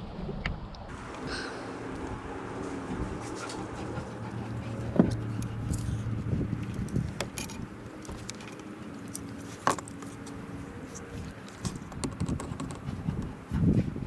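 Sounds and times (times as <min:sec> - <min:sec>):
low hum: 0:00.0 - 0:14.0
handling clicks and knocks: 0:04.8 - 0:13.5.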